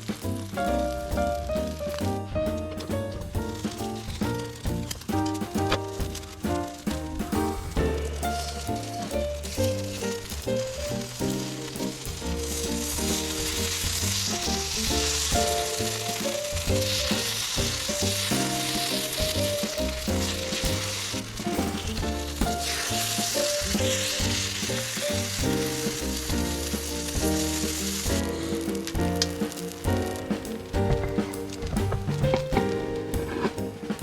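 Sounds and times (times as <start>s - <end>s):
food sizzling: 0.0s - 34.0s
background music: 0.6s - 34.0s.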